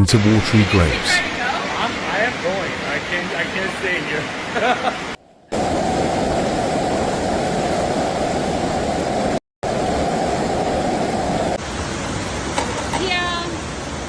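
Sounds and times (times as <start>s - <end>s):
rushing floodwater: 0.0s - 14.0s.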